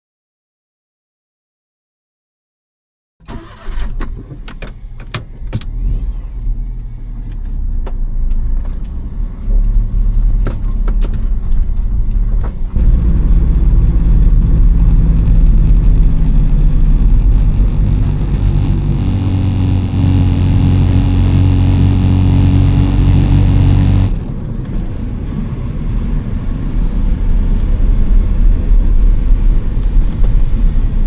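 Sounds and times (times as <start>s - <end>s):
small car engine running: 8.2s - 31.0s.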